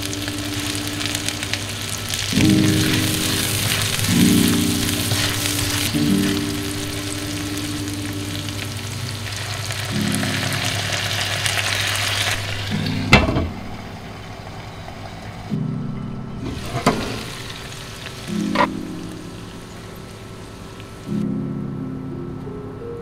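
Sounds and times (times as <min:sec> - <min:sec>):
vegetables sizzling in oil: 0:00.0 - 0:15.5, 0:16.4 - 0:21.2
spatula stirring in pan: 0:02.1 - 0:07.2.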